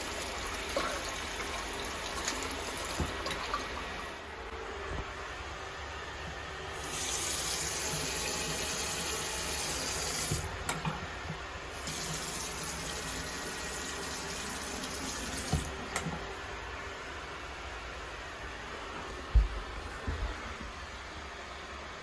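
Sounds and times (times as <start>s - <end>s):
water running into basin: 0.0s - 4.3s, 6.7s - 16.3s.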